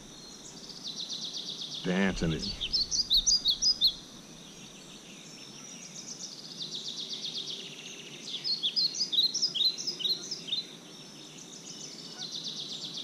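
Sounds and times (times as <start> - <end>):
songbirds singing: 0.0 - 13.0.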